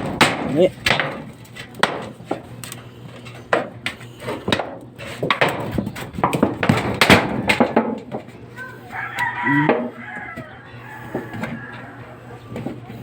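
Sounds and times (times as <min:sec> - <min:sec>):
sharp knocks and clatters: 0:00.0 - 0:02.5, 0:03.5 - 0:08.3.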